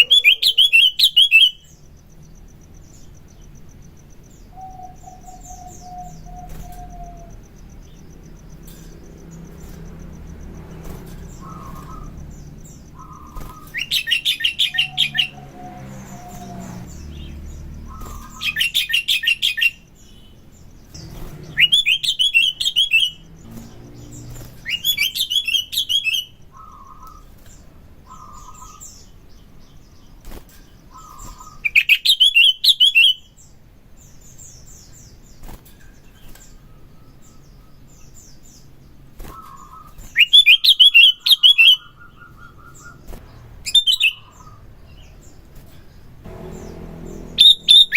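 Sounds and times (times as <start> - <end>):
bird chattering song: 0.0 - 47.9
soft whistled bird notes: 2.6 - 17.0, 46.3 - 47.9.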